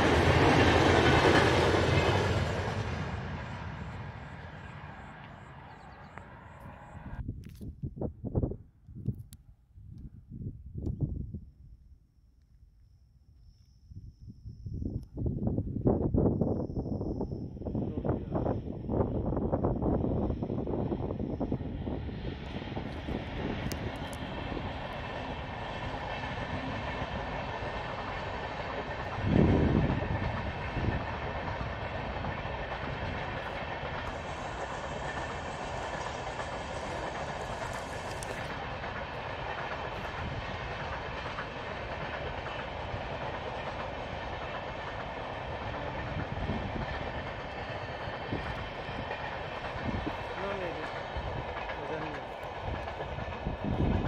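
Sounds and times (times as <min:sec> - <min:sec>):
train wheels rolling on rails: 0:00.0 - 0:07.2, 0:18.0 - 0:54.0.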